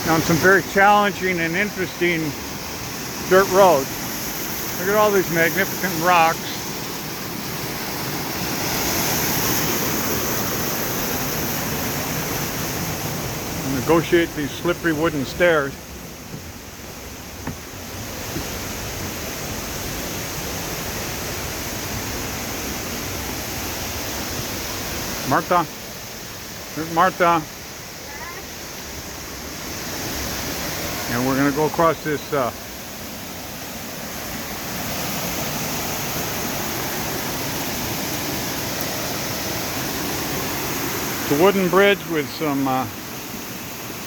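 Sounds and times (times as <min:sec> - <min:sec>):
waterfall rushing: 0:00.0 - 0:44.0
faint knocks: 0:17.4 - 0:17.7.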